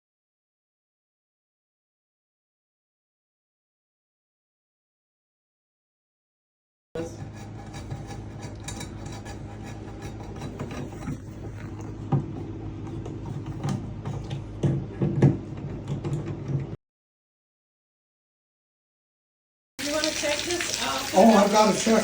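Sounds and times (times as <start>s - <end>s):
steady low hum: 7.0s - 16.8s.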